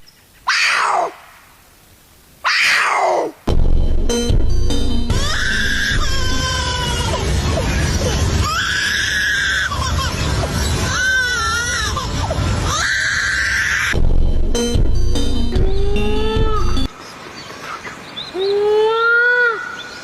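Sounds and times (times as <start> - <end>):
high-pitched screaming cries: 0.5 - 1.2, 2.4 - 3.3, 5.1 - 14.0
low music bed: 3.5 - 8.6, 13.9 - 16.9.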